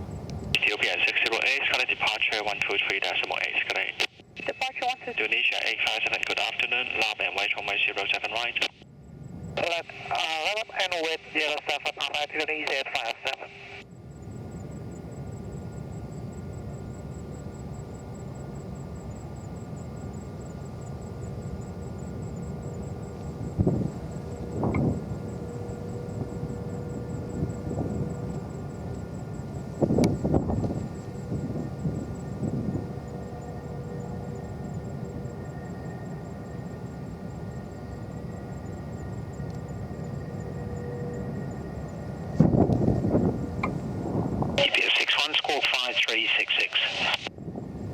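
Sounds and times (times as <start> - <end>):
distant jet aircraft rumble: 0.0 - 47.9.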